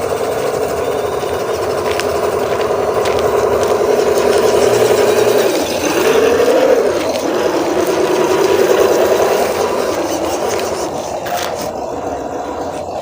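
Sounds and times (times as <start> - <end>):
small electric motor whining: 0.0 - 13.0.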